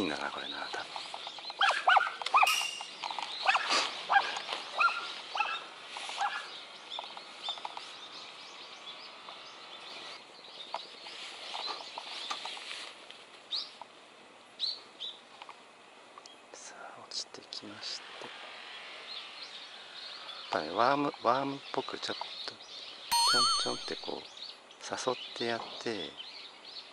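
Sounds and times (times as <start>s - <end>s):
birds chirping: 0.0s - 12.4s, 19.1s - 25.4s.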